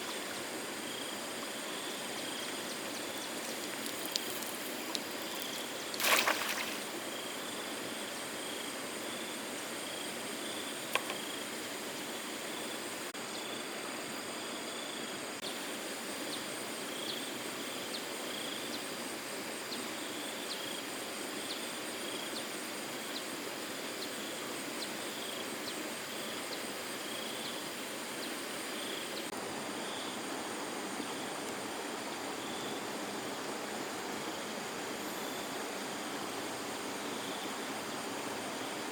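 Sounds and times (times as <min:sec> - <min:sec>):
flowing water rushing: 0:00.0 - 0:07.1
splash or knock: 0:06.0 - 0:06.8.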